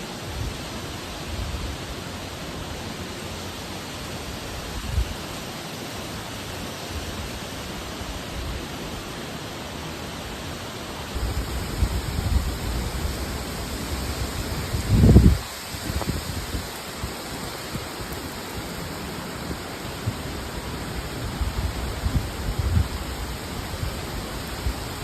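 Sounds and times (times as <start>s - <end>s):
fast-moving water rushing: 0.0s - 25.0s
wind gusts on microphone: 11.1s - 25.0s.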